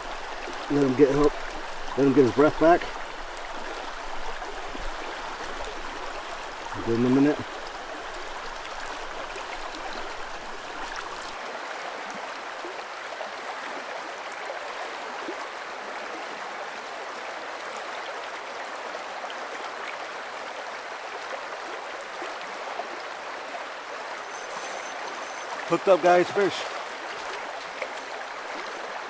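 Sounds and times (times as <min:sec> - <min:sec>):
river water rushing over rocks: 0:00.0 - 0:29.0.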